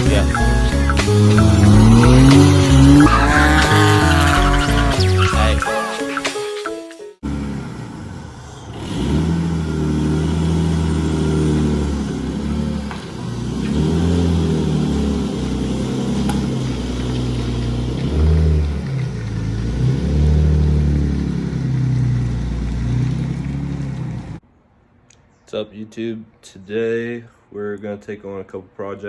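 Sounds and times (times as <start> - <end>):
car engine revving: 0.0 - 5.5, 7.2 - 24.4.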